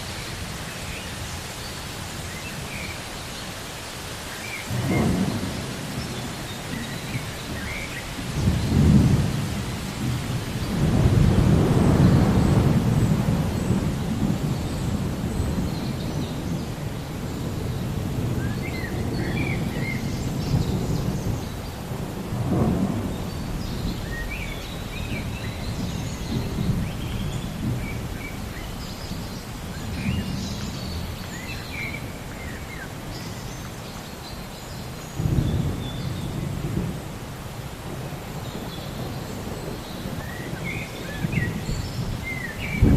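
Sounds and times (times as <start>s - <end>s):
birds chirping: 0.0s - 21.8s
steady rain: 0.0s - 42.9s
rolling thunder: 4.7s - 31.2s, 37.8s - 42.9s.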